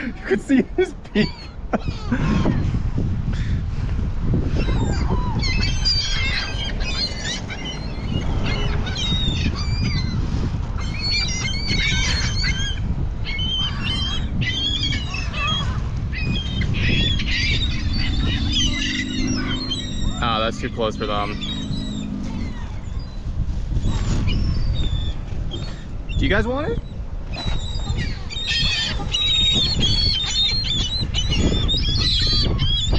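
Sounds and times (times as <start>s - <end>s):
gulls squawking: 0.0s - 3.7s, 4.4s - 32.9s
low rumble: 1.0s - 11.4s, 15.0s - 26.1s.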